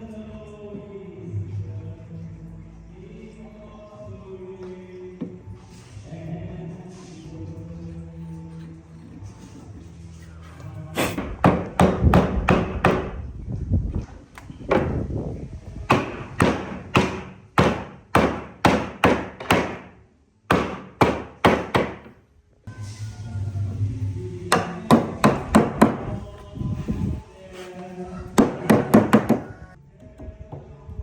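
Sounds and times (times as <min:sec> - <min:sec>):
hammer blows on wood: 0:11.0 - 0:13.2, 0:15.9 - 0:19.9, 0:24.5 - 0:26.3, 0:28.4 - 0:29.5.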